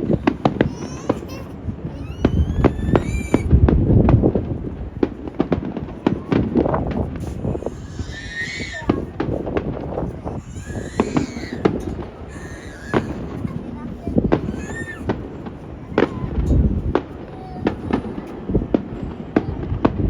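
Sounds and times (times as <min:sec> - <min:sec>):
crowd voices: 0:00.0 - 0:20.0
fireworks bangs and crackles: 0:00.0 - 0:20.0
wind buffeting microphone: 0:00.0 - 0:20.0.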